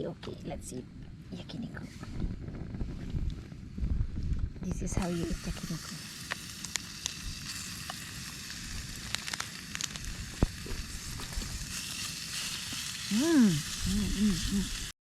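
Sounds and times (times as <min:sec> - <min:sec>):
meat sizzling on a grill: 0:03.8 - 0:14.9.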